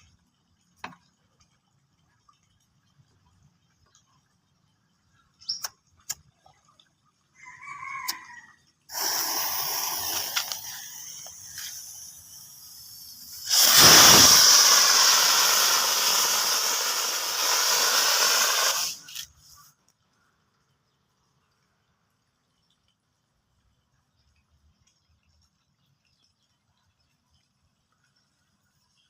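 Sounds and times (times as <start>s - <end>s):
rocket motor rushing hiss: 8.9s - 19.3s
rocket hissing and sputtering: 8.9s - 19.4s.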